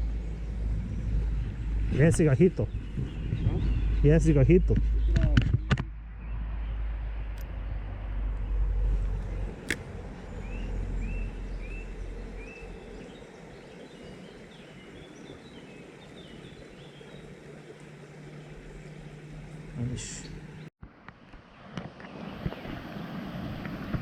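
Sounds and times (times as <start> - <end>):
wind rumble on microphone: 0.0 - 17.3, 21.5 - 24.0
stream flowing: 8.7 - 24.0
sharp click: 9.1 - 9.9.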